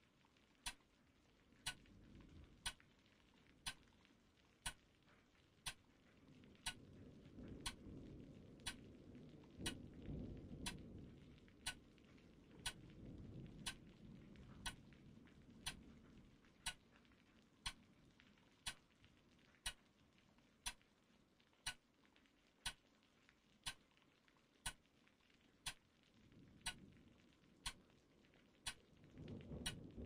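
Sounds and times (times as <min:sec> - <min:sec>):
faint low rumble: 0:00.0 - 0:22.9, 0:23.6 - 0:30.0
clock ticking: 0:04.6 - 0:04.8, 0:09.6 - 0:09.8, 0:11.6 - 0:11.8, 0:13.6 - 0:13.8, 0:14.6 - 0:14.8, 0:16.6 - 0:16.8, 0:18.6 - 0:18.9, 0:20.6 - 0:20.8, 0:21.6 - 0:21.8, 0:22.6 - 0:22.8, 0:23.6 - 0:23.8, 0:24.6 - 0:24.9, 0:26.6 - 0:26.9, 0:28.6 - 0:29.0, 0:29.6 - 0:30.0.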